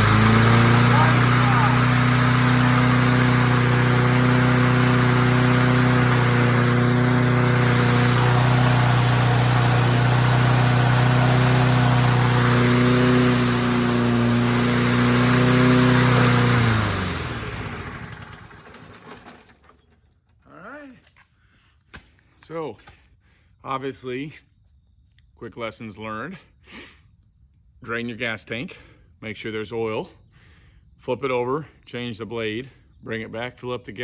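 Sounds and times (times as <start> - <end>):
push mower engine running: 0.0 - 20.0.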